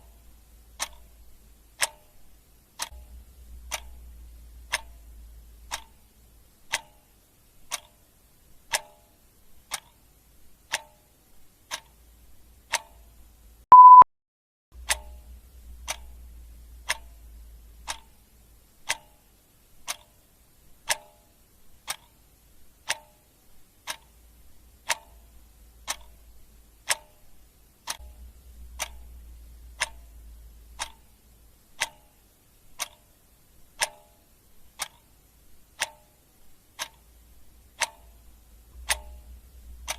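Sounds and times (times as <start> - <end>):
clock ticking: 0.0 - 14.0, 14.8 - 39.9
short loud beep: 13.7 - 14.1.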